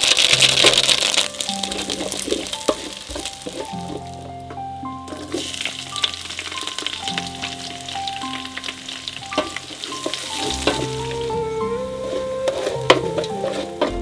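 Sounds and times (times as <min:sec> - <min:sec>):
food sizzling in hot oil: 0:00.0 - 0:04.3, 0:05.0 - 0:13.9
soft background music: 0:00.0 - 0:14.0.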